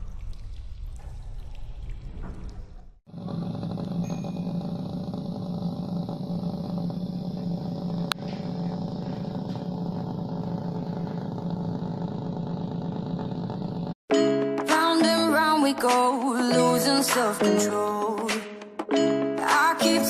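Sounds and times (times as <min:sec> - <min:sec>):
small motor running: 0:03.1 - 0:14.0.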